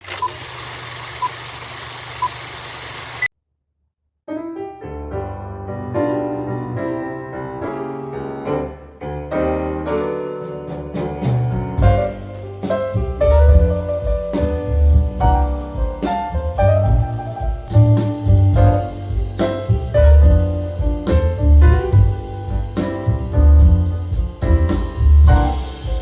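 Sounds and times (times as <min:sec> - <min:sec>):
piano music with bass line: 0:04.3 - 0:26.0
sharp drum-like beats: 0:10.7 - 0:26.0.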